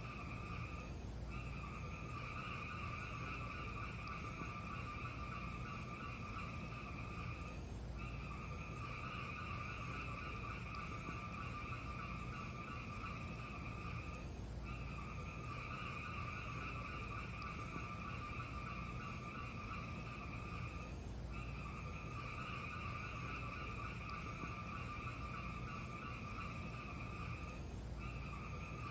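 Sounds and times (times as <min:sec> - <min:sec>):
fire hissing and crackling: 0:00.0 - 0:28.9.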